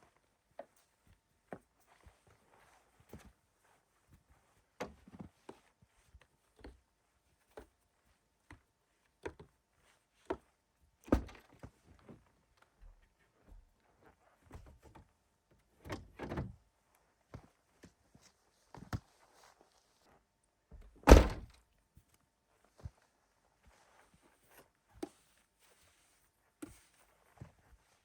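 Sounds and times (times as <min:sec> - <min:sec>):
thuds: 0:20.8 - 0:21.6.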